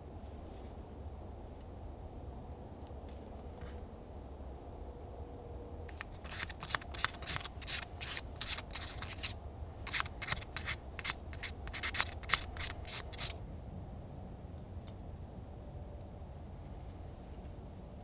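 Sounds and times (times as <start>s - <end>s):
hand scraping strokes: 5.9s - 13.4s.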